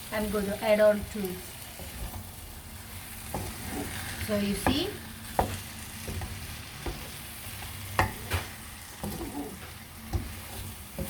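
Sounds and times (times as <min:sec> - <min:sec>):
chicken sizzling in a pot: 0:00.0 - 0:11.0.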